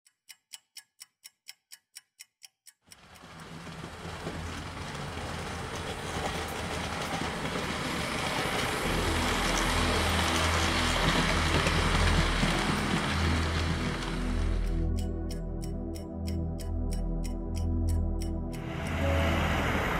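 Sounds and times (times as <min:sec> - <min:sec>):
sharp regular ticks: 0:00.0 - 0:03.8, 0:14.6 - 0:19.0
passing train rumble: 0:03.0 - 0:15.7, 0:16.4 - 0:19.9.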